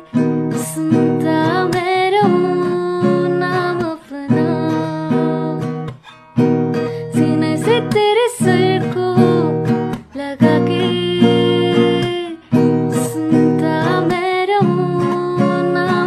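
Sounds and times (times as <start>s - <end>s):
strummed acoustic guitar chords: 0.0s - 16.0s
person singing slow melody: 7.0s - 16.0s.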